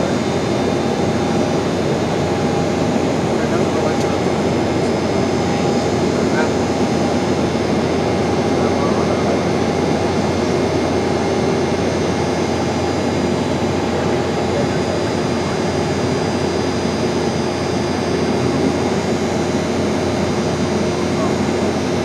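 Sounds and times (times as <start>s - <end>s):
airliner engines in flight: 0.0s - 22.0s.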